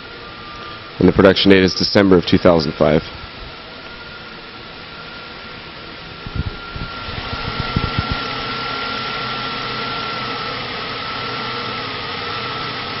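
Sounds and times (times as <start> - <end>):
engine running: 0.0 - 13.0
thin high whine: 0.0 - 13.0
low engine thumps: 6.2 - 8.3.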